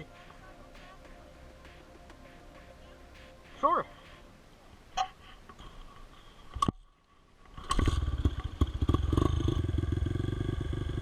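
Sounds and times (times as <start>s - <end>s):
motorcycle engine running: 7.9s - 11.0s.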